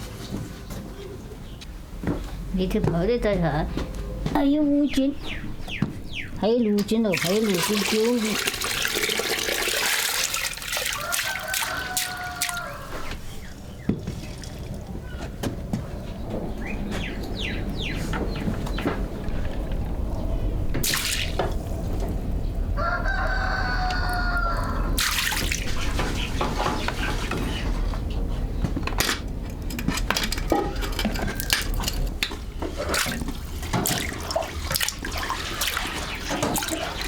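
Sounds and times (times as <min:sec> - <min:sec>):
water splashing: 0:07.0 - 0:15.0, 0:20.8 - 0:21.8, 0:25.0 - 0:27.9, 0:31.2 - 0:37.0
rooster crowing: 0:10.8 - 0:13.2, 0:22.7 - 0:25.0
knocks and clatter: 0:25.7 - 0:34.1.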